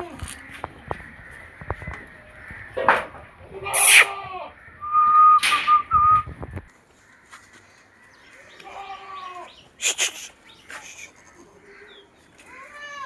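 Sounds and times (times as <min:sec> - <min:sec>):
goat bleating: 0:03.5 - 0:04.6, 0:08.6 - 0:09.6, 0:12.4 - 0:13.0
goat high held call: 0:03.7 - 0:04.3.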